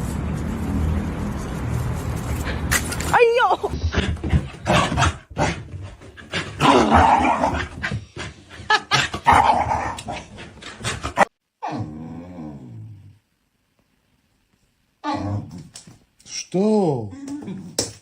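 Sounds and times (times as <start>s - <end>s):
dog growling and barking: 4.5s - 8.0s, 8.9s - 13.1s.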